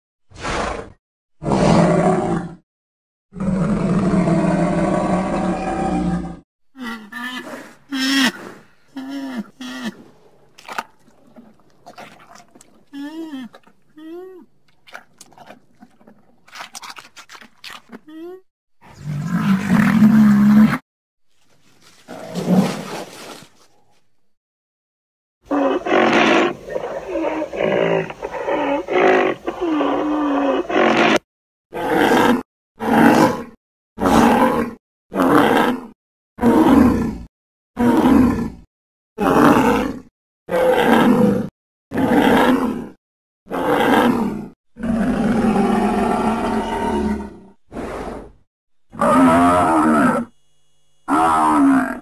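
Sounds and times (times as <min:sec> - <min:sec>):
breathy creature call: 0:48.9 - 0:50.3, 0:51.1 - 0:52.0.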